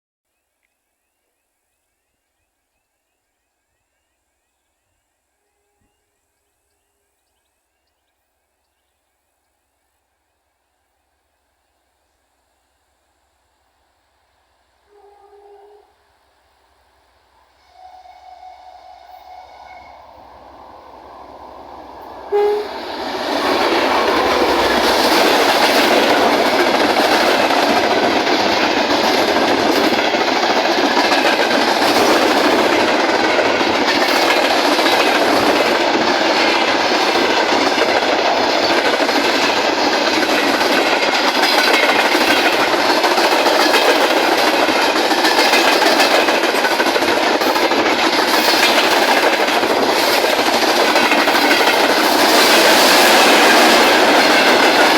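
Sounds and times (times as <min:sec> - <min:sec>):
freight train passing: 0:14.9 - 0:54.9
wheels clattering over rail joints: 0:22.4 - 0:54.9.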